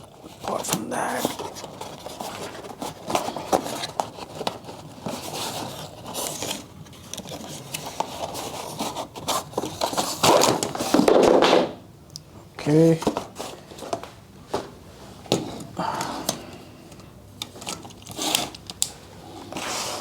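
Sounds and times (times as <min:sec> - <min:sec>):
tripod and packaging handling noise: 0:00.2 - 0:11.4, 0:15.4 - 0:20.0.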